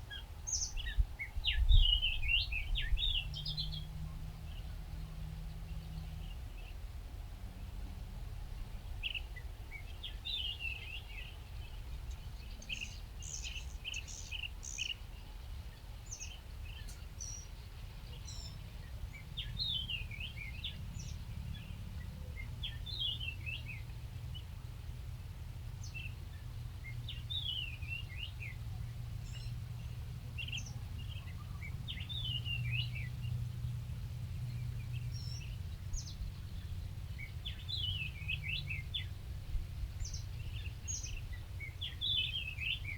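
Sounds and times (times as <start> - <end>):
low background rumble: 8.3 - 42.9
small bird chirping: 12.1 - 15.0.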